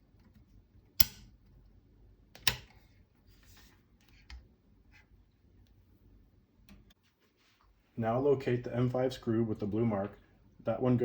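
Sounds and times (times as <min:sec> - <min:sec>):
sharp metallic clicks: 0:01.0 - 0:01.3.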